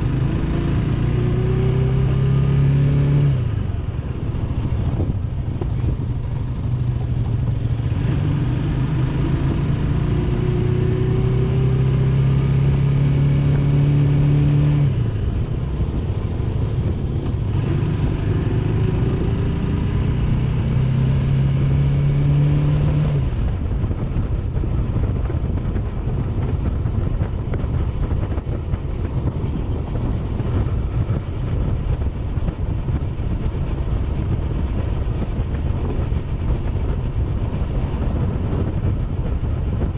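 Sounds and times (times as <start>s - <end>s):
motorcycle engine accelerating: 0.0s - 39.9s
steady rushing noise: 0.0s - 39.9s.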